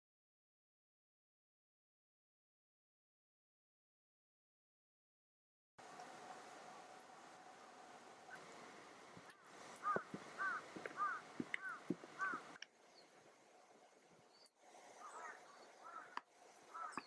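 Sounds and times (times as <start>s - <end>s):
bird calling: 9.2s - 13.1s, 14.3s - 17.0s.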